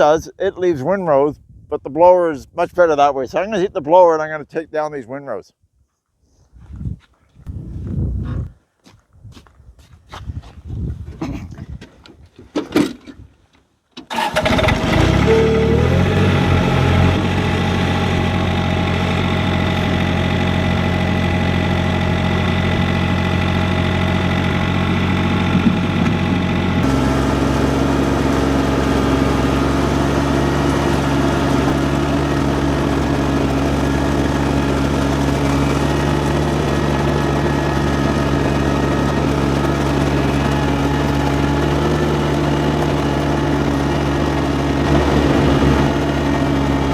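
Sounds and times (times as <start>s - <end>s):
diesel tractor engine running: 14.1s - 46.9s.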